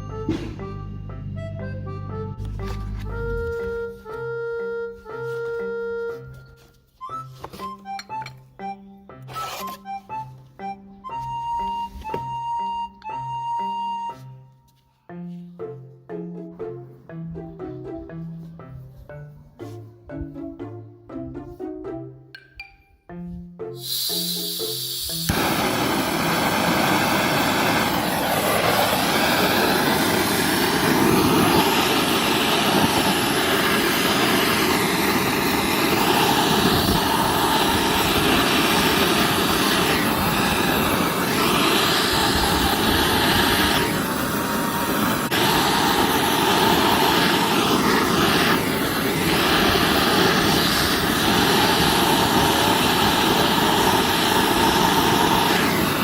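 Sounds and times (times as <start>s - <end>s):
brush cutter engine running: 25.3s - 56.0s.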